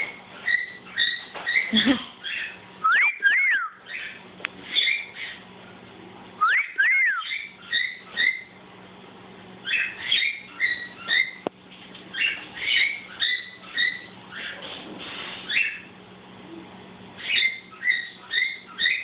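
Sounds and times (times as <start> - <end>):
cockatiel whistling and chirping: 0.4 - 5.4, 6.4 - 8.5, 9.6 - 11.4, 12.1 - 14.6, 15.4 - 15.9, 17.2 - 19.0.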